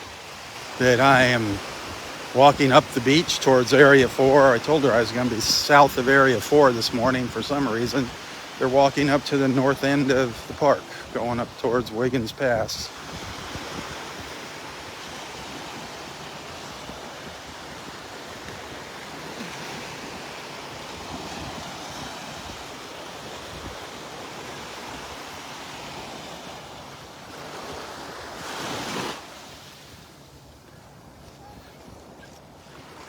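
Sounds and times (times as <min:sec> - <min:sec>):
surf washing onto beach: 0:00.0 - 0:33.0
wind on microphone: 0:12.8 - 0:14.5.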